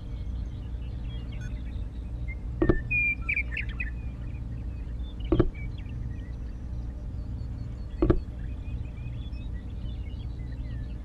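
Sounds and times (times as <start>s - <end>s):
faint high chirps: 0.0s - 11.0s
dull knocks: 2.6s - 2.9s, 5.3s - 5.6s, 8.0s - 8.3s.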